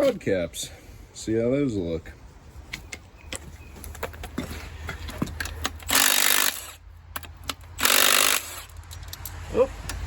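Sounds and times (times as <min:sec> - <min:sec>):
impact wrench bursts: 0:05.6 - 0:06.8, 0:07.5 - 0:08.9.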